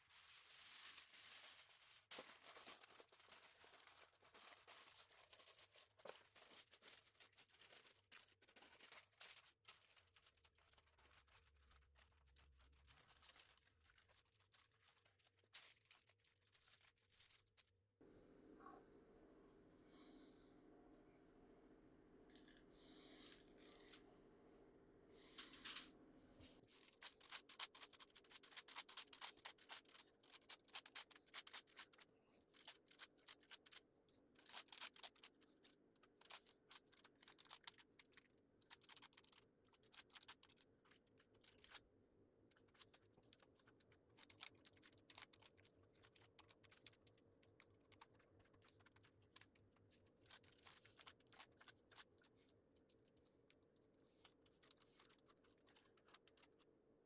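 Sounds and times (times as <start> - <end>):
faint clicking and scratching: 0.0 - 57.0.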